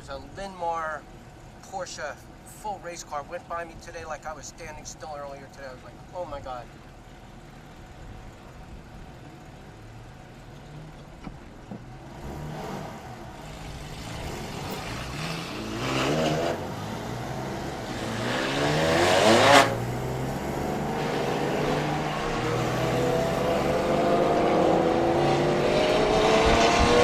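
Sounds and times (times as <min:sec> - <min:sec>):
car engine accelerating hard: 0:07.8 - 0:27.0.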